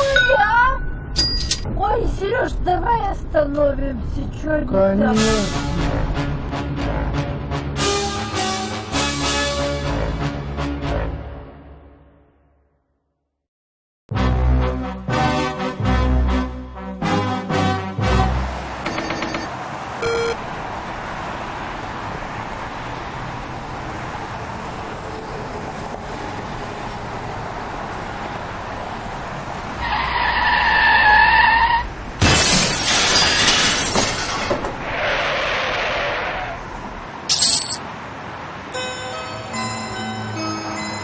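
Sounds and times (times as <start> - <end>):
car road noise: 17.5 - 38.8
high tire squeal: 29.8 - 32.0, 34.8 - 36.7
car crash with shattering: 32.2 - 35.0.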